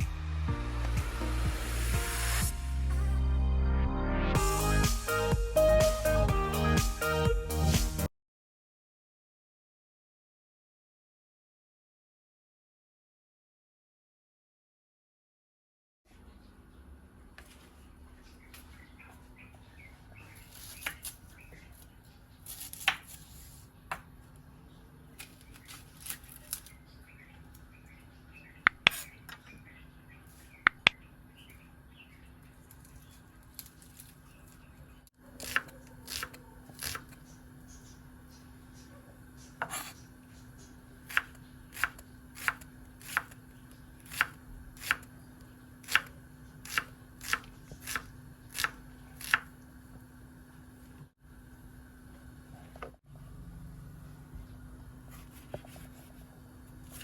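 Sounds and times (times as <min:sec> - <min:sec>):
steady low hum: 0:37.0 - 0:57.0
knife chopping on cutting board: 0:39.6 - 0:40.0, 0:41.1 - 0:43.4, 0:44.1 - 0:45.0, 0:45.8 - 0:49.5.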